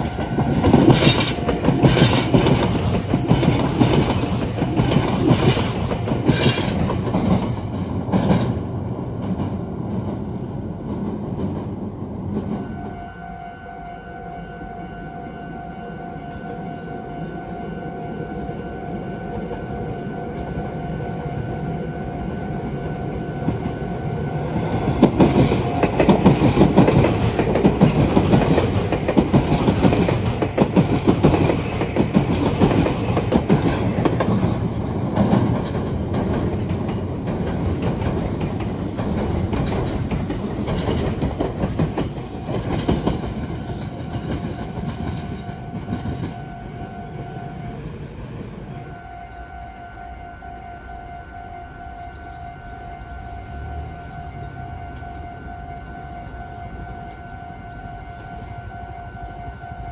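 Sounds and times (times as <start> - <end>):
train wheels clicking over joints: 0.0 - 12.6, 23.4 - 46.4
steady high tone: 48.8 - 59.9.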